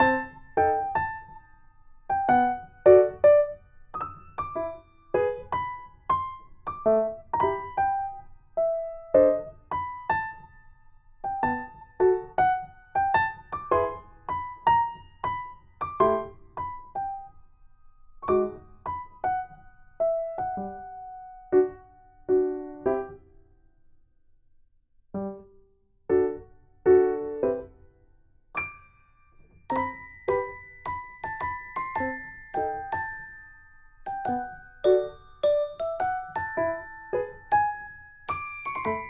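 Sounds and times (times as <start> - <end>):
piano melody: 0.0 - 23.4, 25.2 - 39.0.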